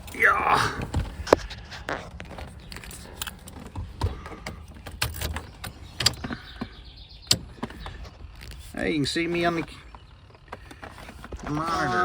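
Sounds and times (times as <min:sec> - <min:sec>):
scattered clicks and knocks: 0:00.8 - 0:08.6.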